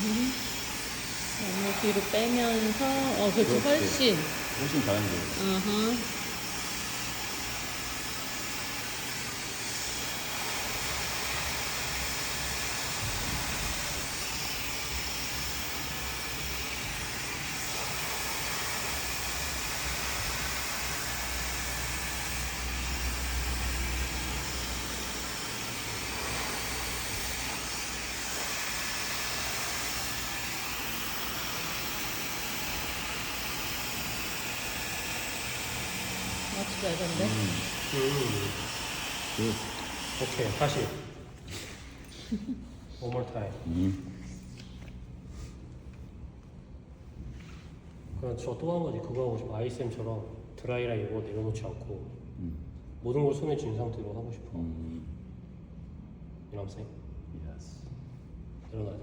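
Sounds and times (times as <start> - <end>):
hair dryer blowing: 0.0 - 42.6.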